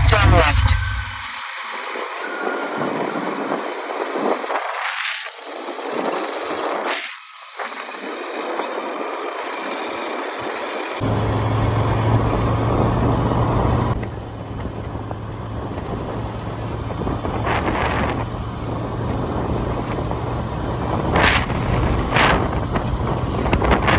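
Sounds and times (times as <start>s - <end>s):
low engine hum: 0.0s - 4.2s, 11.0s - 23.9s
wind and road rush: 0.0s - 23.9s.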